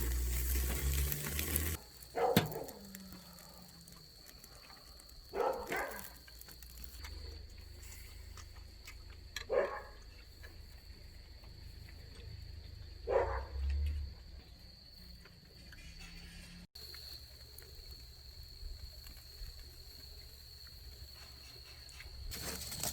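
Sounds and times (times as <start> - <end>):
dog barking: 2.1 - 3.6, 5.3 - 6.2, 9.4 - 10.0, 13.0 - 13.6.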